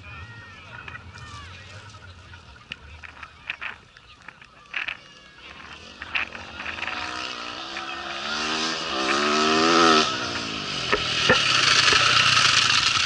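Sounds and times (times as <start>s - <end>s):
motorcycle engine passing at speed: 5.4s - 13.0s.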